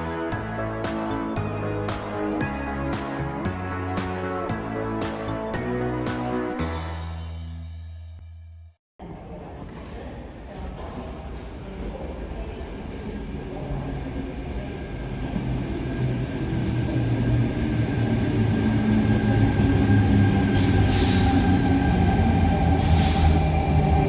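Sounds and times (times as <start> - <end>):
electric train rumble: 12.1 - 24.0.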